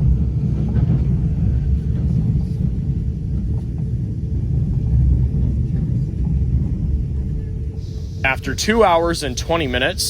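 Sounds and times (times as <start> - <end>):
train rumbling on rails: 0.0 - 10.0.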